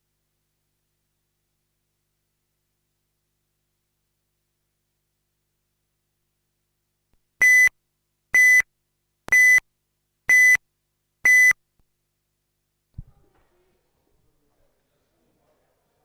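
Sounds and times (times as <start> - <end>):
short electronic beeps: 7.4 - 7.7, 8.4 - 8.6, 9.3 - 9.6, 10.3 - 10.6, 11.3 - 11.6.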